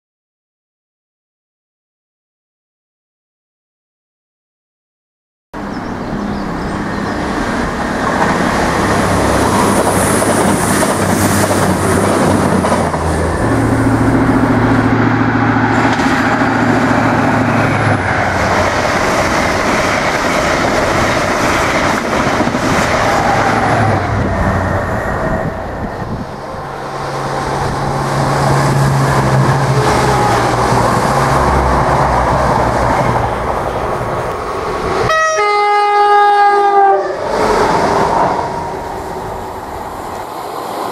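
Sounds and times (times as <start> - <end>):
diesel train passing at speed: 5.6 - 40.9
train horn blast: 35.0 - 37.3.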